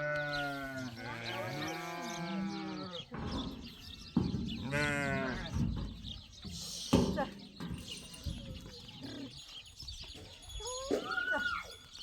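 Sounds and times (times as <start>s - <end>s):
sheep bleating: 0.0s - 3.0s, 4.6s - 5.5s.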